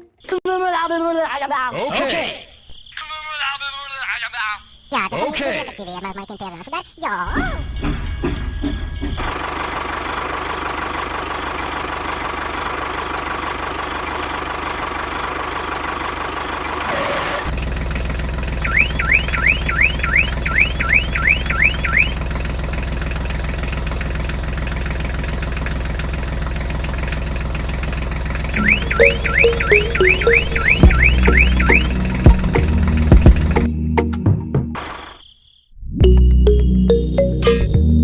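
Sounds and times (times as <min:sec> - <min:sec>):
rising electronic chirps: 0:18.6 - 0:22.1, 0:28.6 - 0:32.1
deep engine-like drone: 0:28.5 - 0:33.8.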